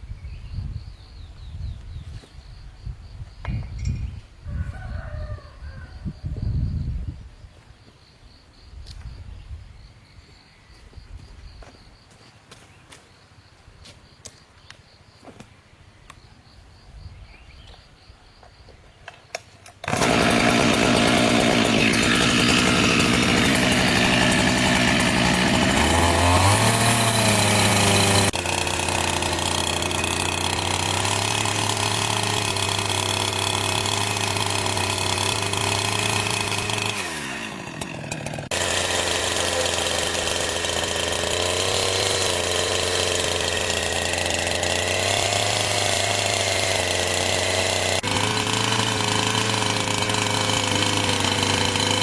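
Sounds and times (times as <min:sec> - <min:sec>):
chainsaw running: 0:19.6 - 0:52.0.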